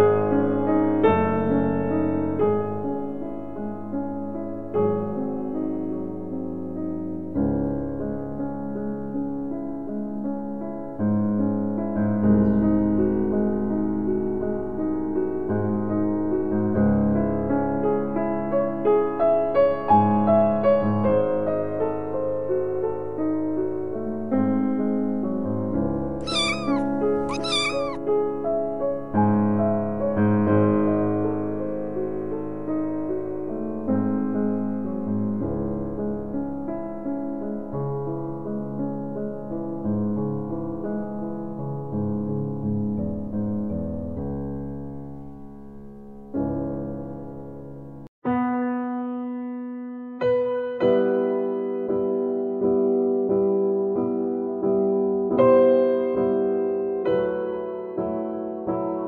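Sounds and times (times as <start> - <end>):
kitten meowing: 26.2 - 28.0
soft piano music: 48.3 - 59.0.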